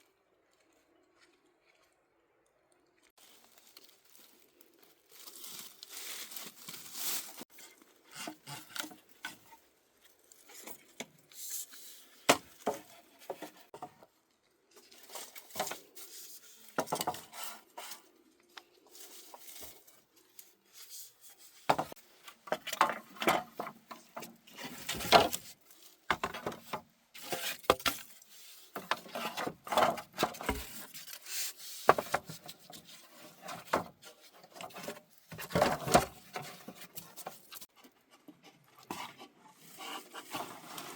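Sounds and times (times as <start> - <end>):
wood being worked by hand: 7.4 - 9.6, 21.0 - 40.9.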